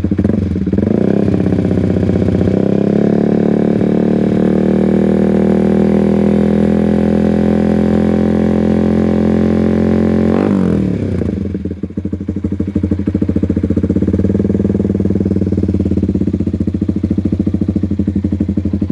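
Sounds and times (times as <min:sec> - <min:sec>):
motorcycle engine revving and idling: 0:00.0 - 0:18.9.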